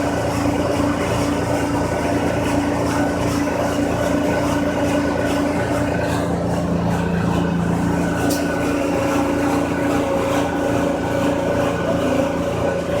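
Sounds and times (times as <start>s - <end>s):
machine humming steadily: 0.0s - 13.0s.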